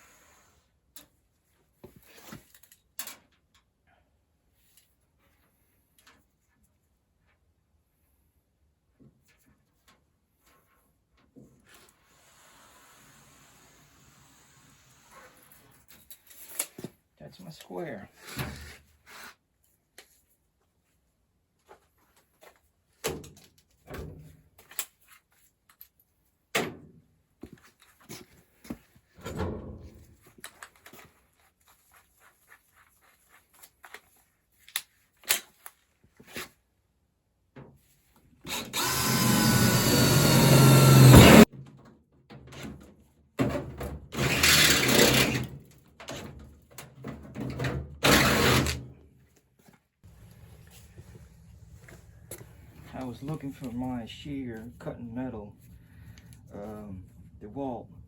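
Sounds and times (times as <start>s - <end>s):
sheet metal clanks and thuds: 29.2s - 30.2s.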